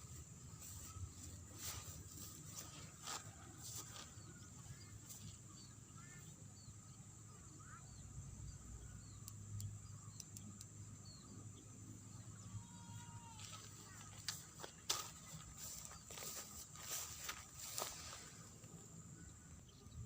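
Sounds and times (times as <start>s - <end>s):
sharp ticks: 9.2s - 10.8s.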